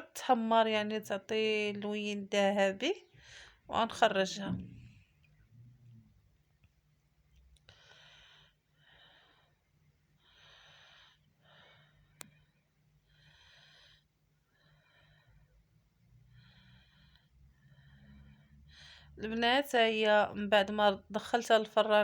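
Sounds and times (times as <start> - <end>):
faint breathing: 3.1 - 3.7, 7.7 - 19.2.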